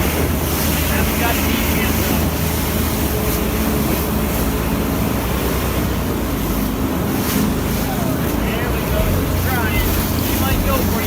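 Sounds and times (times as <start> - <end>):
motorboat engine running: 0.0 - 11.0
rushing water: 0.0 - 11.0.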